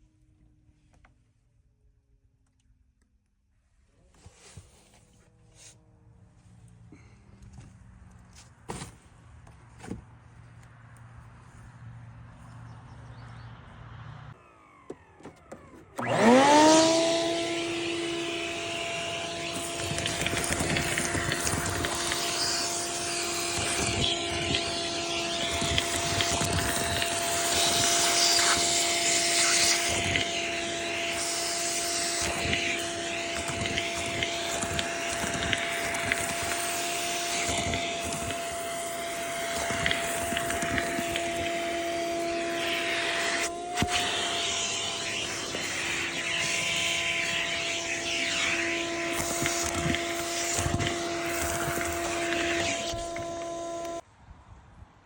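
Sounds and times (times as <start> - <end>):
vacuum cleaner running: 14.3 - 54.0.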